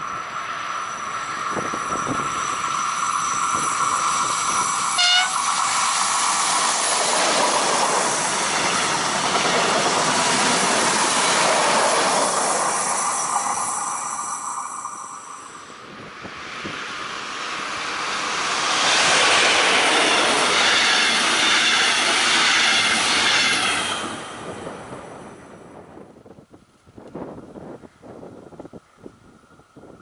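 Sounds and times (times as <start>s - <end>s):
rush of passing train: 0.0s - 30.0s
train horn blast: 5.0s - 5.4s.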